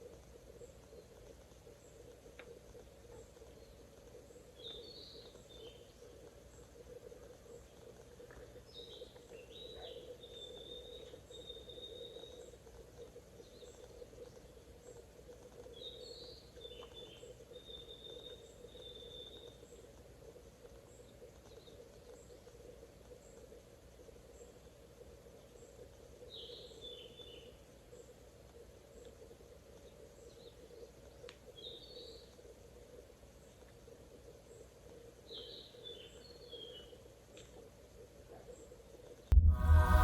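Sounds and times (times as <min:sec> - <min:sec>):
soft high ticks: 0:00.0 - 0:09.4, 0:28.0 - 0:35.2
steady low hum: 0:00.0 - 0:40.0.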